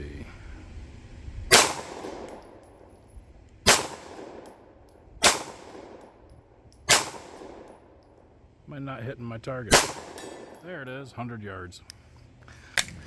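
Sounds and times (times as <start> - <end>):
pistol shots: 1.5 - 2.9, 3.6 - 6.2, 6.9 - 8.0, 9.7 - 10.6.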